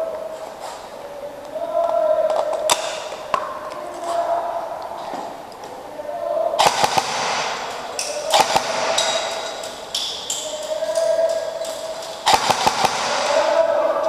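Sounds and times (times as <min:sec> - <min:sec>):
airsoft gun cracks: 0:06.6 - 0:13.6.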